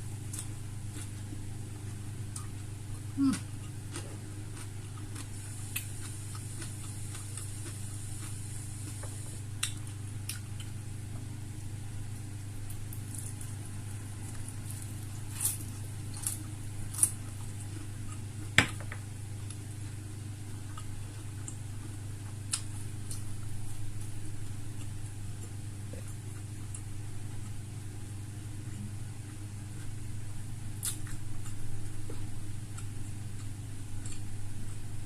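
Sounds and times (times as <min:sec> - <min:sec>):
steady low hum: 0:00.0 - 0:35.0
person chewing: 0:00.3 - 0:01.3, 0:02.3 - 0:10.8, 0:14.3 - 0:18.8, 0:30.8 - 0:34.8.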